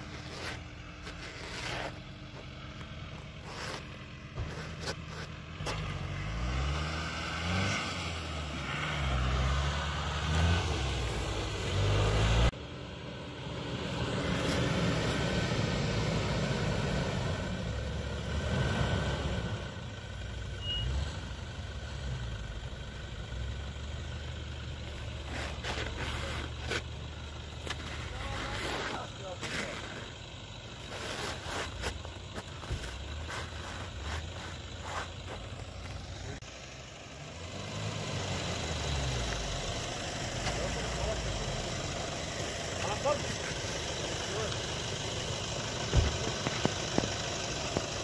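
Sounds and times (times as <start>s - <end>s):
engine running steadily: 0.0s - 48.0s
off-road engine revving: 0.0s - 48.0s.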